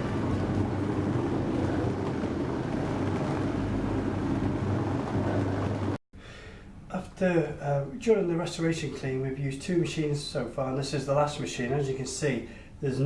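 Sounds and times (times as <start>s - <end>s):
carpet cleaning machine motor drone: 0.0s - 6.0s.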